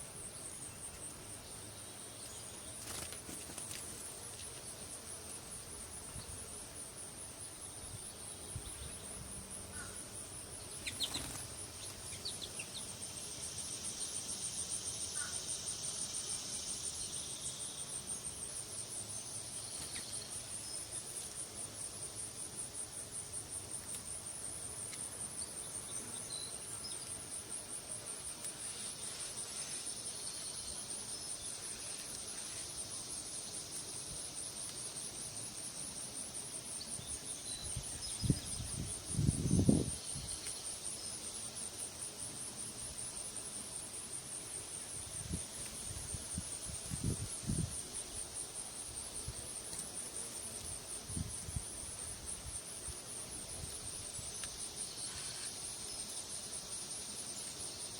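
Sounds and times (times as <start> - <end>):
insects trilling high-pitched: 0.0 - 57.9
low insect buzz: 0.0 - 57.9.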